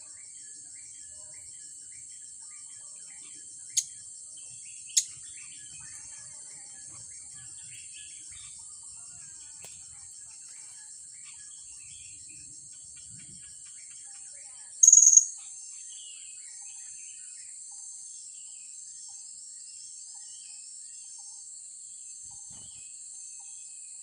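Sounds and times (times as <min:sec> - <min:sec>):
parrots chirping: 0:04.9 - 0:05.3, 0:14.8 - 0:15.3
high-pitched insect drone: 0:14.8 - 0:15.3.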